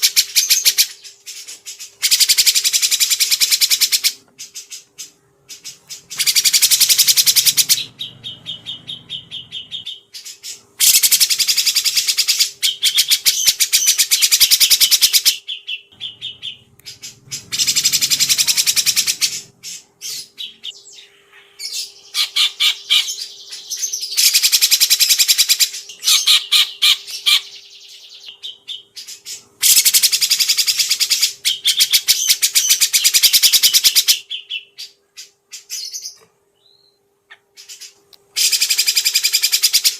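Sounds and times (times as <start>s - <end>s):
faint steady hum: 0.0s - 39.9s
songbird trilling: 5.5s - 37.0s.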